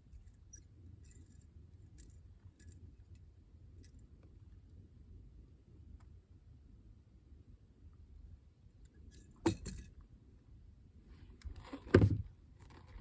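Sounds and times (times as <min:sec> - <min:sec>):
metal fishing tackle clinking: 0:09.1 - 0:09.9.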